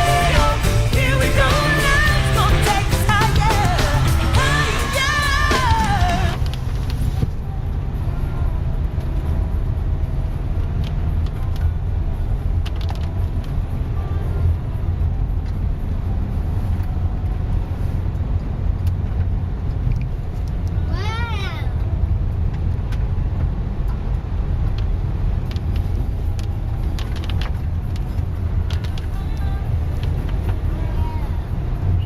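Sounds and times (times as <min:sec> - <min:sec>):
song: 0:00.0 - 0:06.4
car interior road and engine noise: 0:00.0 - 0:32.0.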